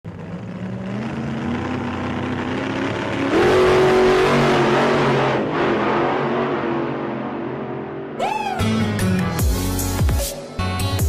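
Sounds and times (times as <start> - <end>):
vehicle engine revving: 0.1 - 7.9.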